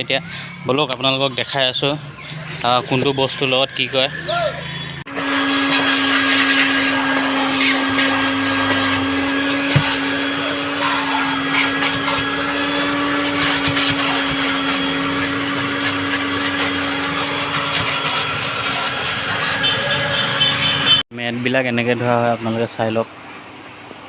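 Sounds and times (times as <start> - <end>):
car wash motor hum: 2.6 - 21.0
hissing noise: 5.1 - 20.4.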